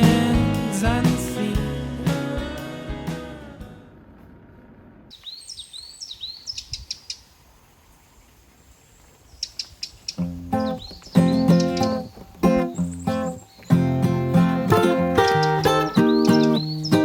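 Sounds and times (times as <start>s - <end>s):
background music: 0.0s - 3.8s
birds chirping: 5.1s - 7.4s, 8.0s - 17.0s.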